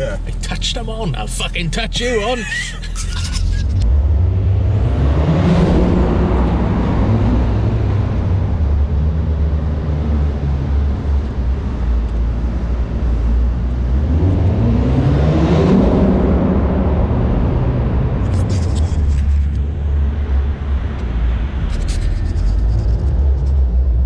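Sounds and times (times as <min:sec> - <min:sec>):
high whine: 0:00.0 - 0:04.0
car engine revving: 0:03.2 - 0:11.7.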